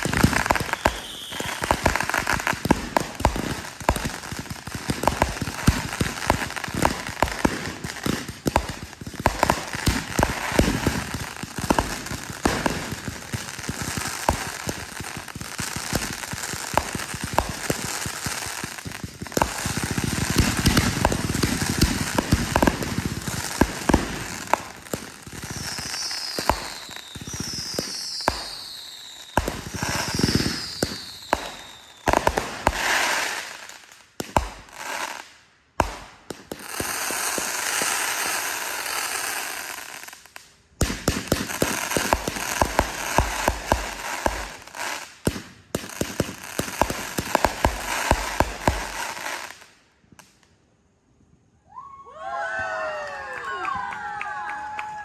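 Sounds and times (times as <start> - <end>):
falling firework whistles: 0.0 - 3.6, 16.7 - 35.2, 35.8 - 50.5
fireworks bangs and crackling: 0.0 - 50.4.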